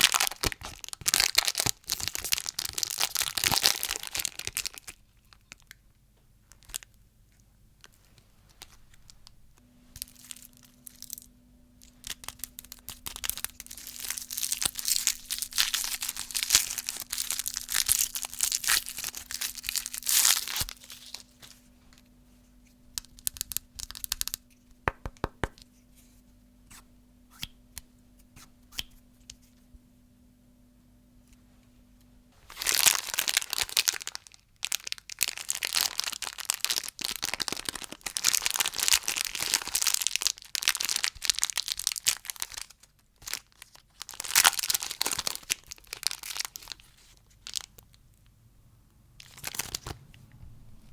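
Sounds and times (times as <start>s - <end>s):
plastic wrapper crinkling: 0.0s - 5.8s, 6.5s - 7.0s, 7.8s - 25.7s, 32.4s - 48.0s, 49.2s - 50.0s
faint steady hum: 0.0s - 50.9s
sharp clicks and taps: 24.0s - 25.7s.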